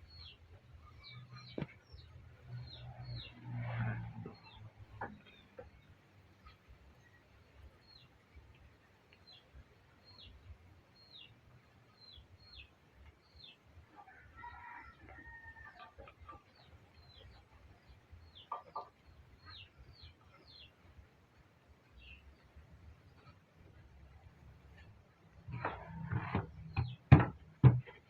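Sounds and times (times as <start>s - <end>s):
chick peeping: 18.2s - 20.7s.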